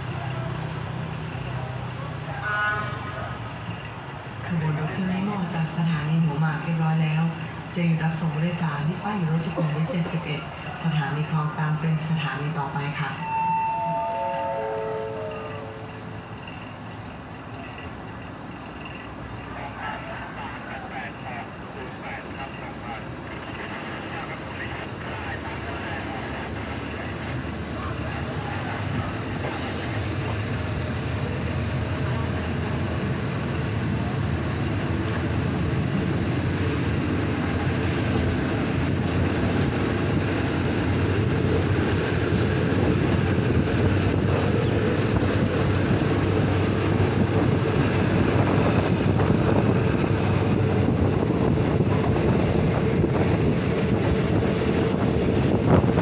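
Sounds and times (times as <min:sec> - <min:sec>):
train engine hum: 0:00.0 - 0:56.0
train rumble: 0:00.0 - 0:56.0
wind buffeting microphone: 0:28.3 - 0:56.0.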